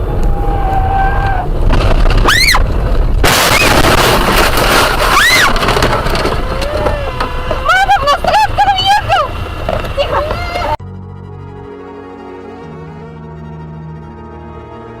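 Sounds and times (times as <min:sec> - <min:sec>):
loud crash: 0:01.5 - 0:07.8.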